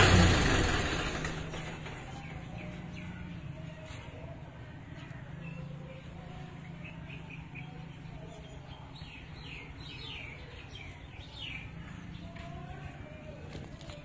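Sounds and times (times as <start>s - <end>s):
birds chirping: 1.5s - 14.0s.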